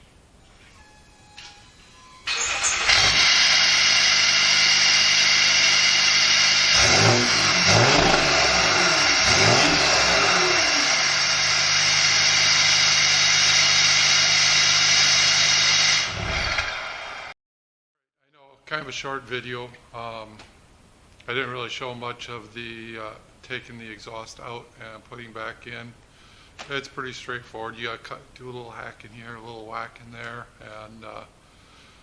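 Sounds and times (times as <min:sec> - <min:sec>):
diesel engine idling and revving: 0:02.3 - 0:17.3.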